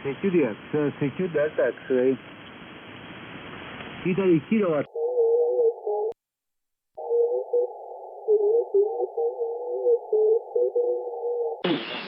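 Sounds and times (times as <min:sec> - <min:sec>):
radio band hiss: 0:00.0 - 0:04.9, 0:11.6 - 0:12.0
muffled wavering radio voice: 0:07.0 - 0:12.0.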